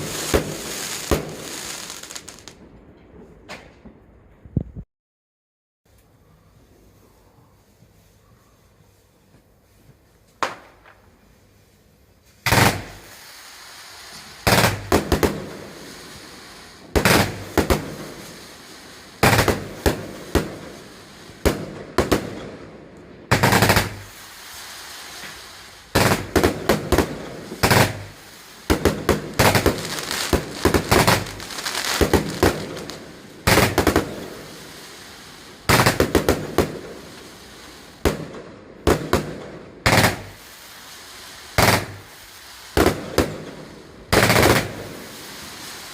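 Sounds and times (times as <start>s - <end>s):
fireworks bangs: 0.0s - 2.6s, 12.4s - 22.7s, 23.3s - 45.9s
fireworks crackling: 0.0s - 2.6s, 10.4s - 22.6s, 23.2s - 45.9s.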